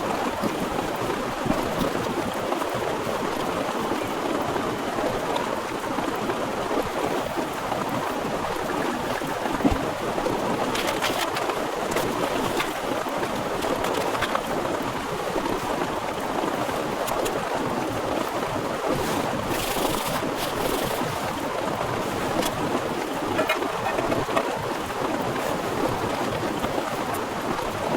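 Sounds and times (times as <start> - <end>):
heavy rain falling: 22.3 - 24.9.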